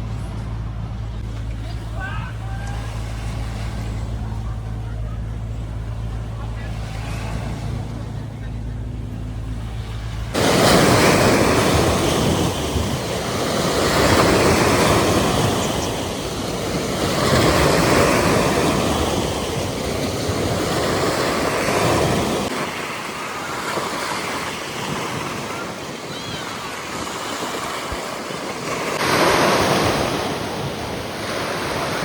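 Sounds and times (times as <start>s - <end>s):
low steady hum: 0.0s - 20.9s
sea waves washing on shore: 0.0s - 32.0s.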